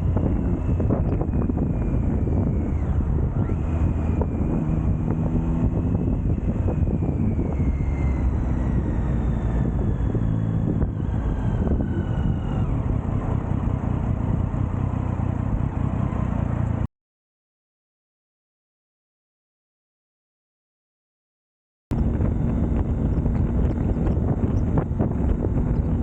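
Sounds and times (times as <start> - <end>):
wind rushing over microphone: 0.0 - 14.8, 21.9 - 26.0
motorcycle engine running: 0.0 - 16.9, 21.9 - 26.0.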